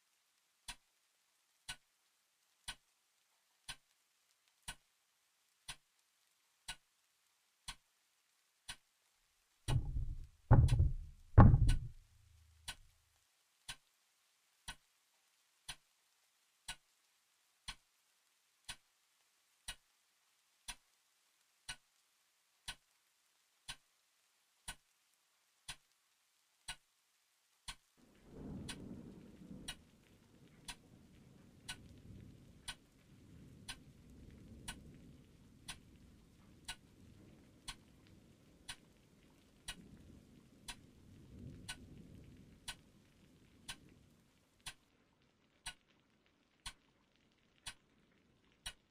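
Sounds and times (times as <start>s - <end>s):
clock ticking: 1.7s - 1.9s, 2.6s - 2.8s, 3.7s - 3.9s, 4.6s - 4.9s, 5.7s - 5.9s, 6.7s - 6.9s, 7.7s - 7.9s, 9.7s - 12.9s, 16.7s - 16.9s, 26.7s - 26.9s, 27.7s - 27.9s, 28.6s - 28.9s, 29.6s - 29.9s, 30.7s - 30.9s, 31.7s - 32.0s, 32.6s - 32.9s, 33.7s - 33.9s, 34.6s - 35.0s, 35.6s - 36.0s, 36.6s - 36.9s, 37.6s - 37.9s, 38.6s - 39.0s, 40.7s - 40.9s, 41.6s - 42.0s, 42.6s - 42.9s, 43.6s - 43.9s, 44.6s - 44.8s, 45.6s - 45.8s, 46.6s - 46.9s, 47.6s - 47.9s, 48.6s - 48.9s
heavy knocks: 9.7s - 12.0s
low uneven rumble: 9.7s - 12.5s.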